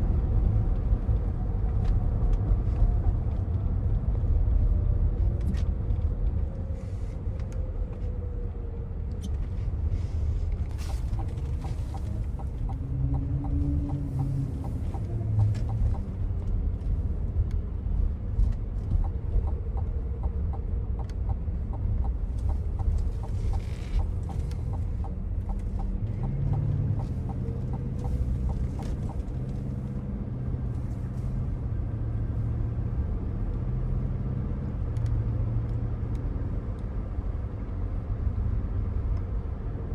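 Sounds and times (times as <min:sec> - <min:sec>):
engine hum: 0:00.0 - 0:39.9
low road rumble: 0:00.0 - 0:39.9
soft regular ticking: 0:10.9 - 0:16.1, 0:18.9 - 0:29.9.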